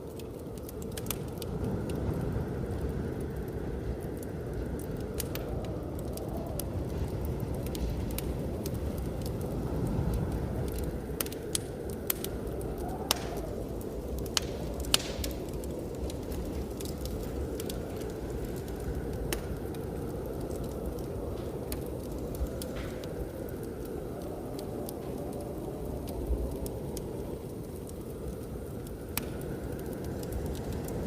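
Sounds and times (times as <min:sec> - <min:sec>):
low rumble of blizzard wind: 0:00.0 - 0:31.0
wood fire crackling and popping: 0:00.0 - 0:31.0.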